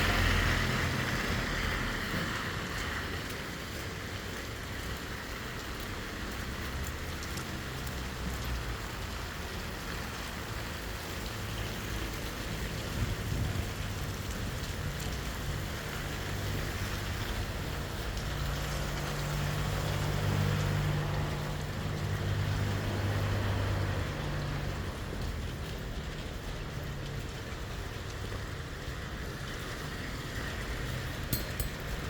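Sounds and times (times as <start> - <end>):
heavy rain falling: 0.0 - 32.0.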